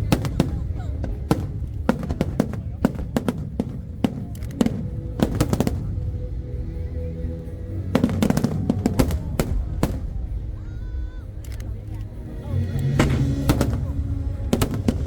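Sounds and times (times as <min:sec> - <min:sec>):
fireworks exploding: 0:00.0 - 0:06.2, 0:07.4 - 0:10.6, 0:12.6 - 0:15.0
music: 0:00.0 - 0:15.0.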